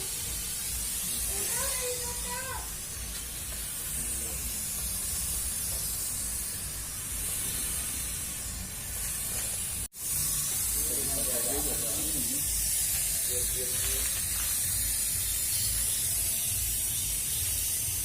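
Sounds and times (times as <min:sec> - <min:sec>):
fogging machine spraying hiss: 0:00.0 - 0:18.0.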